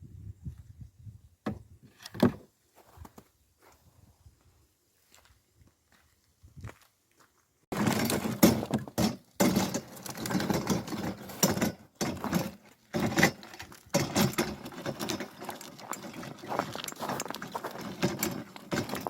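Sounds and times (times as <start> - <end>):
firewood knocking and clattering: 7.7 - 19.0.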